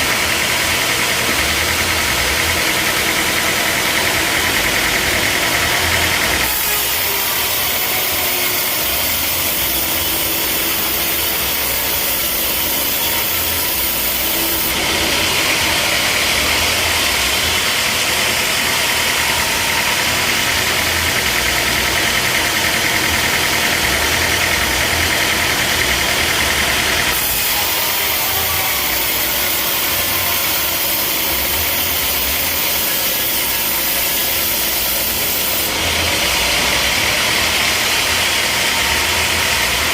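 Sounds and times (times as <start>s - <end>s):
sawmill engine running: 0.0s - 39.9s
loud hiss: 6.4s - 14.7s, 27.1s - 35.7s.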